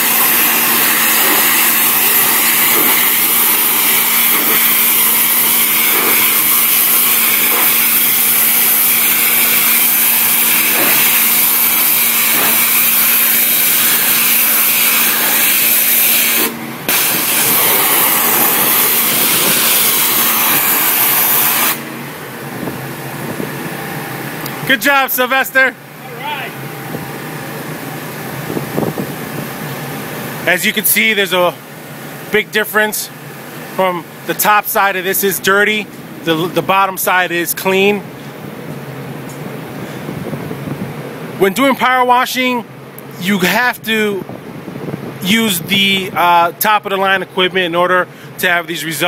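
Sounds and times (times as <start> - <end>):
pressure washer spraying: 0.0 - 21.9.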